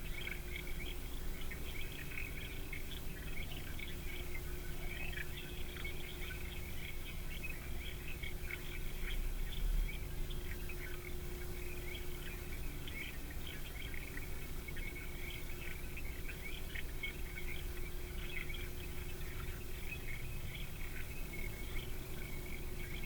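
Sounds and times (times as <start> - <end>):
small birds calling: 0.0 - 23.0.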